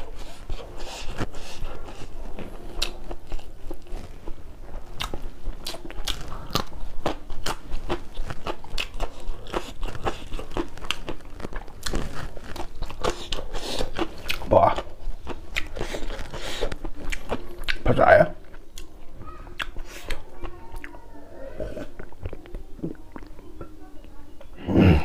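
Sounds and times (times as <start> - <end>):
chewing crisp vegetables: 0.0 - 25.0
wet mouth sounds: 19.5 - 23.4.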